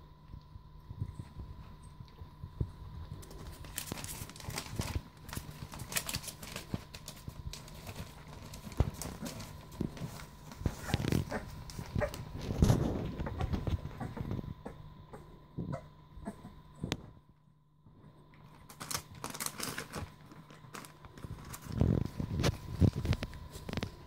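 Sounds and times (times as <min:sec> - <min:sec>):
faint steady hum: 0:00.0 - 0:24.0
puppies scrabbling: 0:03.2 - 0:14.8.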